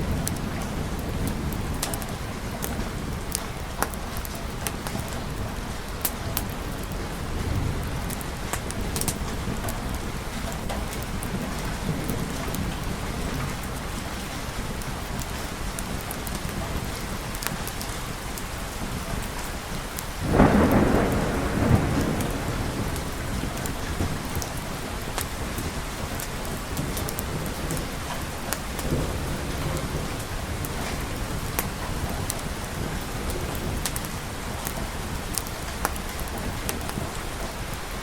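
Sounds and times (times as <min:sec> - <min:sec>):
steady rain: 0:00.0 - 0:38.0
thunderclap: 0:20.2 - 0:37.2.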